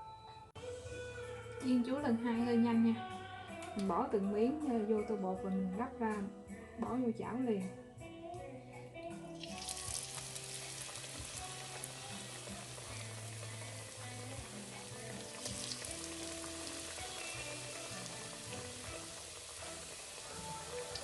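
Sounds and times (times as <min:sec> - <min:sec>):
food frying in hot oil: 0:09.4 - 0:21.0.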